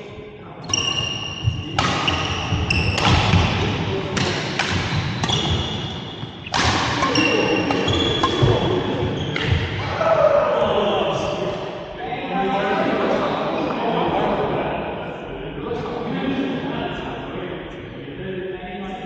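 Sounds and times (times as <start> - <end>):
shoes squeaking on court floor: 0.6 - 9.8
rackets hitting shuttlecock: 0.7 - 9.9.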